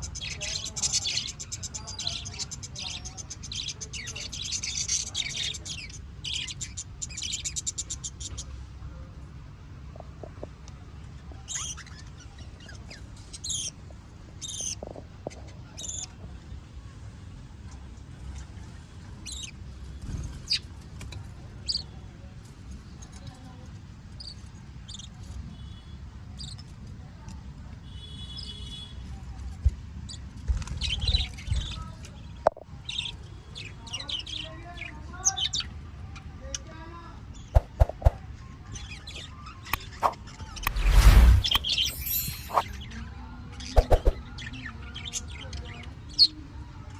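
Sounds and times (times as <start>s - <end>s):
cage birds chirping: 0.0s - 8.7s, 10.9s - 16.9s, 17.9s - 22.0s, 24.1s - 25.8s, 30.0s - 35.8s, 37.2s - 43.0s.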